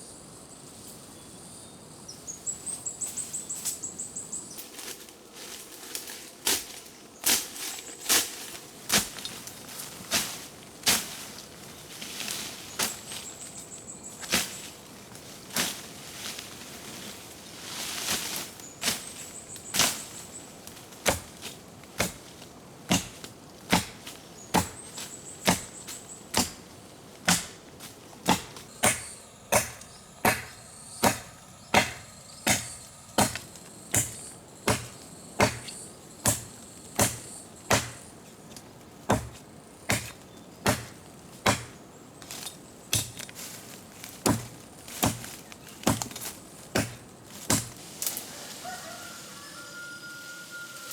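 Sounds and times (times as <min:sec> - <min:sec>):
high insect trills: 0:00.0 - 0:50.9
chopping strikes: 0:21.0 - 0:22.3, 0:22.9 - 0:38.1, 0:39.1 - 0:43.3, 0:44.2 - 0:47.8.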